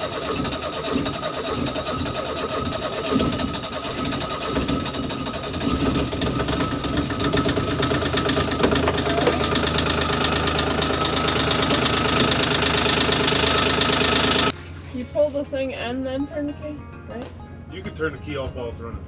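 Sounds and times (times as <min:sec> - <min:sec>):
diesel engine clattering: 0:00.0 - 0:19.0.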